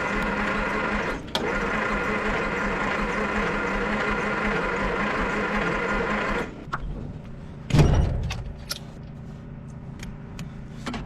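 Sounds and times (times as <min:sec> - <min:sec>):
starter cranking engine: 0:00.0 - 0:06.5.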